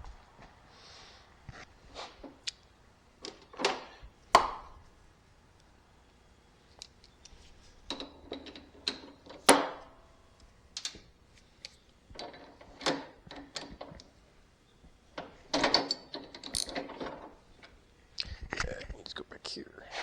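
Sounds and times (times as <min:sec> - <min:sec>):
small metal parts clicking: 0:06.7 - 0:09.5, 0:10.7 - 0:14.1, 0:15.2 - 0:17.8.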